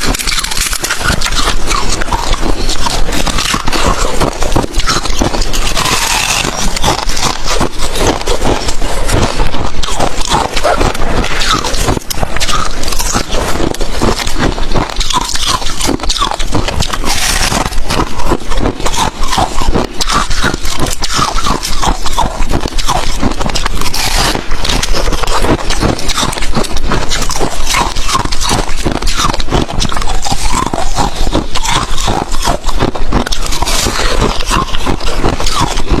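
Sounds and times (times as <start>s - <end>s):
ice being chewed: 0.0s - 36.0s.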